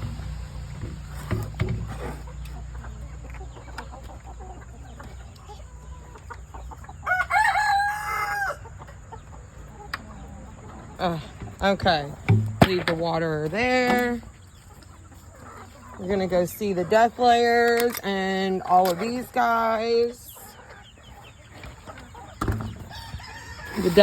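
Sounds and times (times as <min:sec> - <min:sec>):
rooster crowing: 0:07.0 - 0:08.7, 0:22.9 - 0:24.0.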